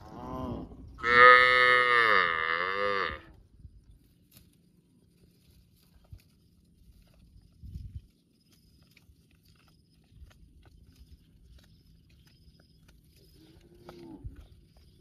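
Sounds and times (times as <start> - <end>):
cow mooing: 0.0 - 3.3.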